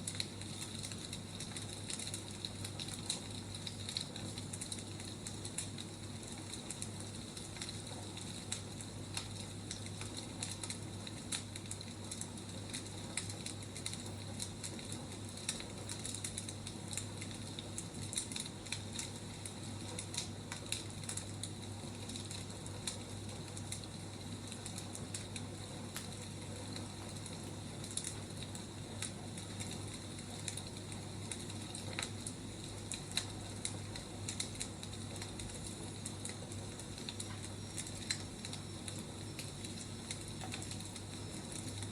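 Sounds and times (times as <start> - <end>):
wood fire crackling and popping: 0.0 - 41.9.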